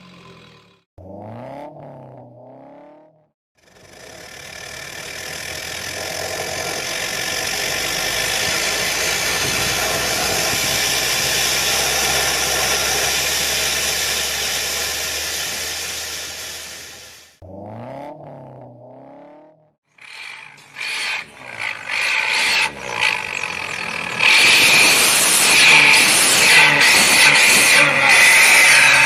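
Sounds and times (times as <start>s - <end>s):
engine droning through racing exhaust: 0.0s - 29.0s.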